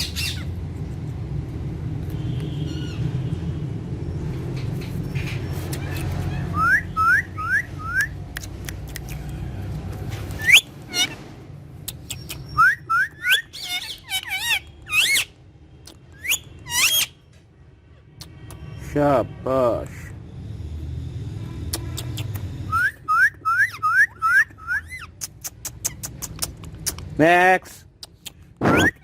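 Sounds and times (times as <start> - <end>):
parrot whistling: 6.4 - 8.1, 10.4 - 11.1, 12.1 - 15.2, 22.7 - 25.1, 28.6 - 29.0.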